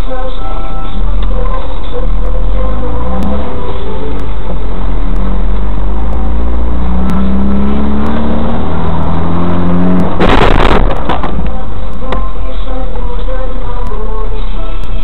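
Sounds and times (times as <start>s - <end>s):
car engine accelerating: 1.0s - 14.1s
loud crash: 10.0s - 11.4s.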